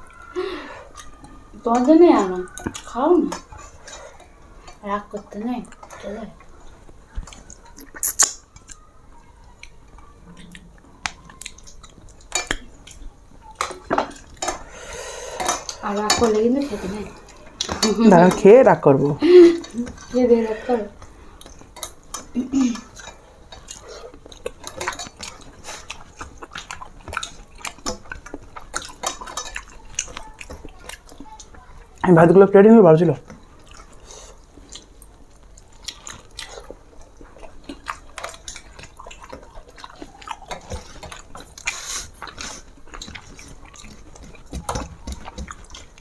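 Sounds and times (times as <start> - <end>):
quiet chewing: 0.0 - 32.3, 33.2 - 46.0
plates and dishes clinking: 15.3 - 18.6.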